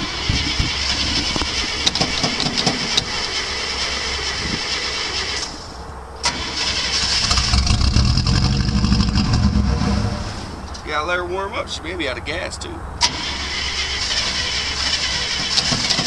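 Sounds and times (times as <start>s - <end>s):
engine starter cranking: 0.0s - 9.5s, 13.0s - 16.0s
engine rumble: 0.0s - 16.0s.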